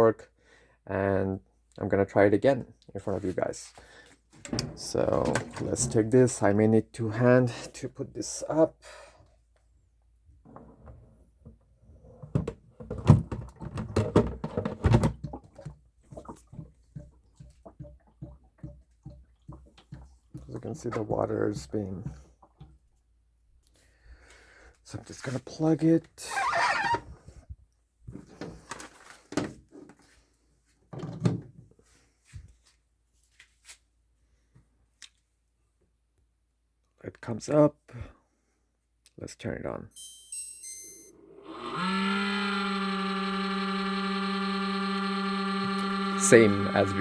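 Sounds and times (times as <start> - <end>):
plastic knocks and clunks: 12.2 - 22.8
soft rustle: 31.8 - 34.5.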